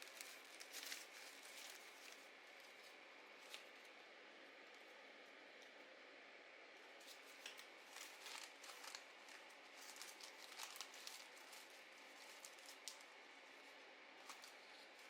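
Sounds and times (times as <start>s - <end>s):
paper crinkling: 0.0s - 3.9s, 7.0s - 15.0s.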